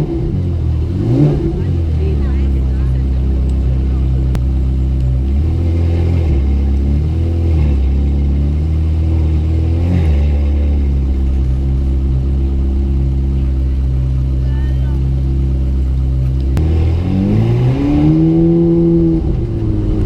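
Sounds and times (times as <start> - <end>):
sports car engine revving: 0.0 - 20.0.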